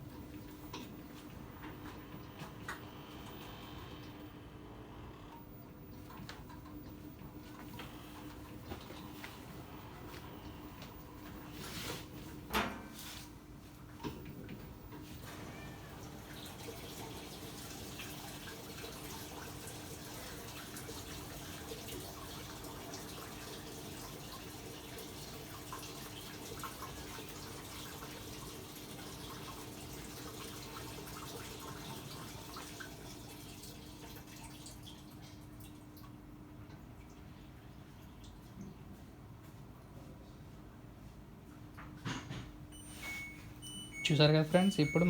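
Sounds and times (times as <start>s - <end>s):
faint hum: 0.0s - 12.4s
water splashing into washing machine: 13.8s - 38.7s.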